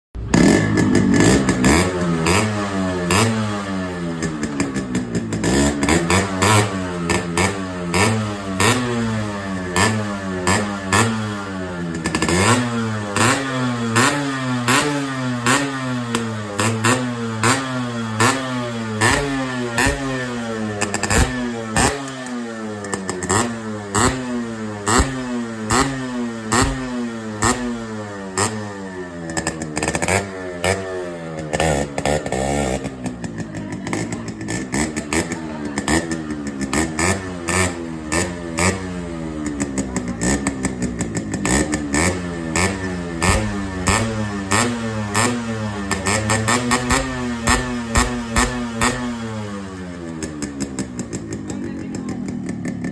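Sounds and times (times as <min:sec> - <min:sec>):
motorcycle engine revving: 0:00.2 - 0:52.9.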